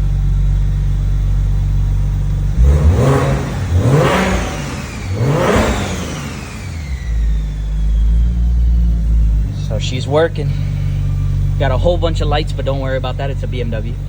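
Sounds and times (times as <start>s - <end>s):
car engine revving from idle: 0.0s - 14.0s
turbo whistle: 3.8s - 9.4s.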